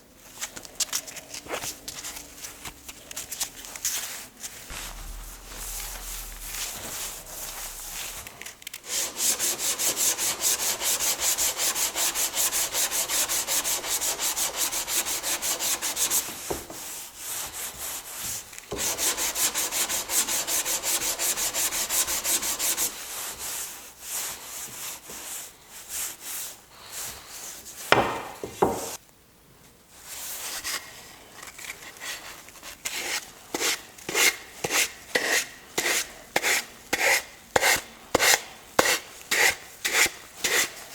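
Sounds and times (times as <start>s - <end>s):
scattered scrapes: 4.6s - 10.9s
sandpaper rubbing on wood: 8.9s - 24.3s, 32.9s - 40.8s
wood knocks: 28.0s - 29.0s.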